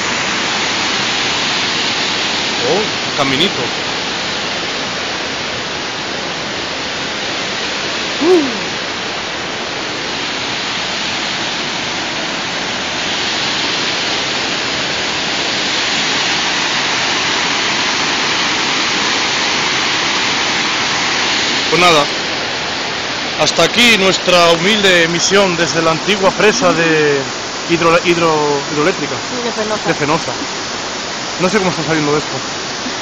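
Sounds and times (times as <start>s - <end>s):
waterfall rushing: 0.0s - 33.0s
short falling vocal sound: 8.2s - 8.8s.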